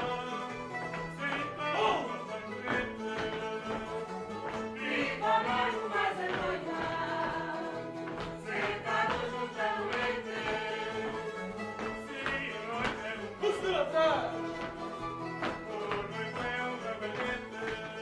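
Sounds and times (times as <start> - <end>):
steady musical accompaniment: 0.0 - 18.0
choir singing: 4.6 - 13.2.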